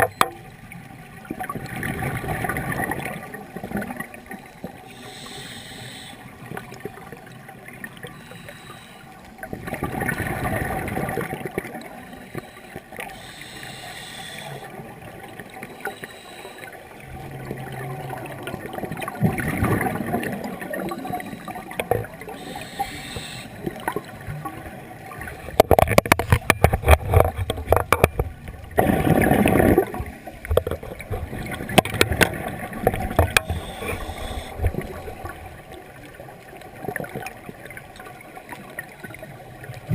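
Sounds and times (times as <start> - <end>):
regulator inhale hiss: 4.9 - 6.3, 8.2 - 9.2, 12.1 - 14.7, 15.7 - 16.8, 22.4 - 23.6, 33.2 - 34.8.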